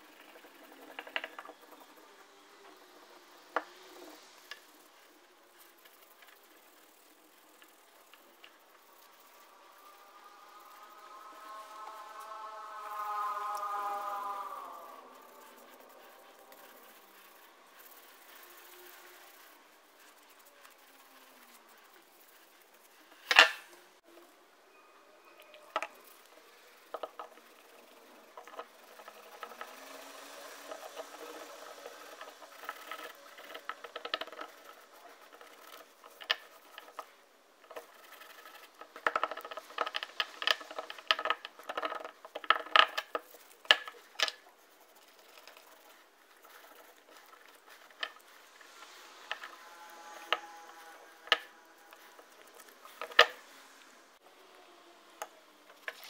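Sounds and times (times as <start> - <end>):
faint whirr: 0.0 - 56.0
workshop scrapes and clicks: 25.3 - 54.2.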